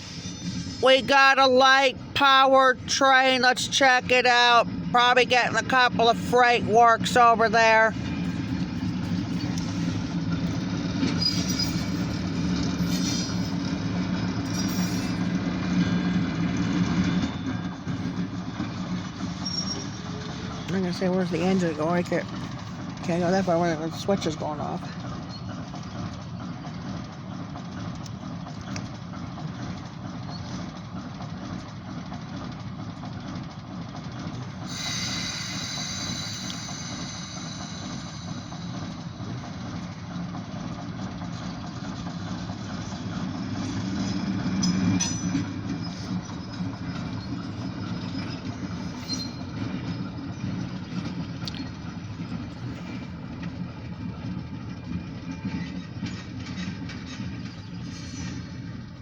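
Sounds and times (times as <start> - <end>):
diesel locomotive engine rumble: 0.0 - 59.0
train wheels on rails: 0.0 - 59.0
high squeal: 11.1 - 13.6, 19.4 - 20.2, 34.7 - 39.1, 45.8 - 50.6.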